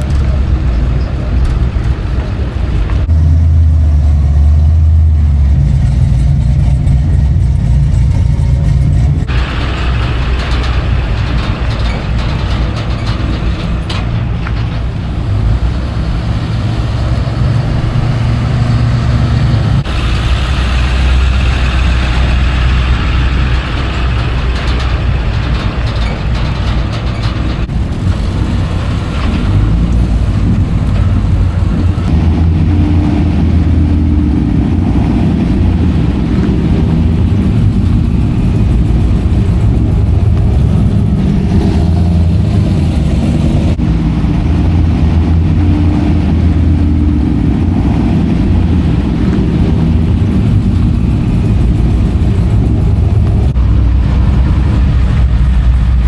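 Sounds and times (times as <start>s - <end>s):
truck engines running: 0.0s - 56.0s.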